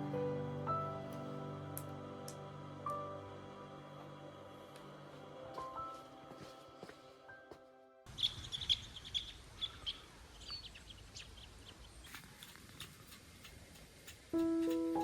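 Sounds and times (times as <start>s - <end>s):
small birds chirping: 8.1s - 15.0s.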